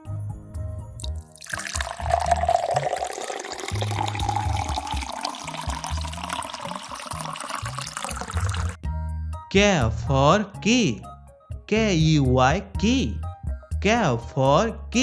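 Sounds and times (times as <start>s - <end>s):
children's music with bass: 0.0s - 15.0s
liquid pouring into a glass: 1.0s - 8.8s.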